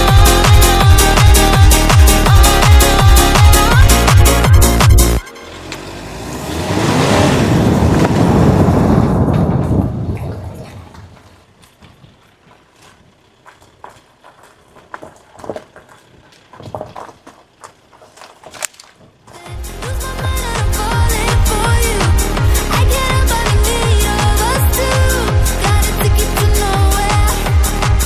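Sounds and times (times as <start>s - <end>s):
vehicle passing by: 5.4s - 11.2s.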